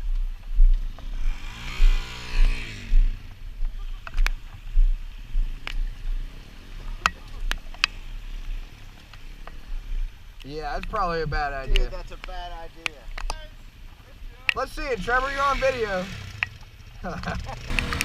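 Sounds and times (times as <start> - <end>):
motorcycle engine revving: 0.8 - 4.1, 14.8 - 18.0
sharp clicks: 14.4 - 14.7, 16.3 - 16.7.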